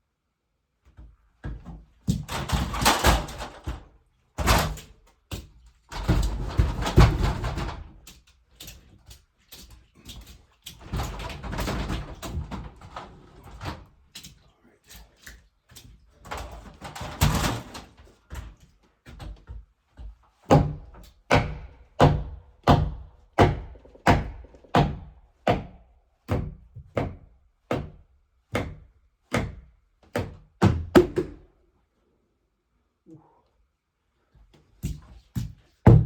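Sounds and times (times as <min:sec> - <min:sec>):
tool striking wood: 0:20.5 - 0:28.0.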